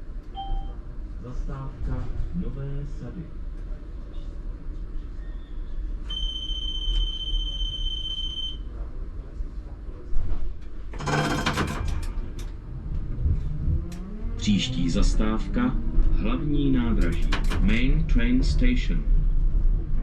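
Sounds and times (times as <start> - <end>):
tram low rumble: 0.0 - 20.0
tram doors shutting: 10.2 - 18.6.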